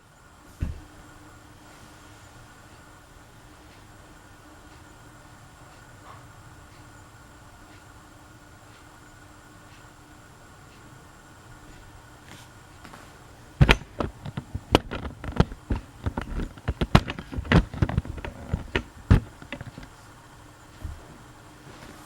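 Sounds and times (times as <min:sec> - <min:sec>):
ceiling fan hum: 0:00.0 - 0:22.0
sharp clicks and knocks: 0:13.6 - 0:20.0.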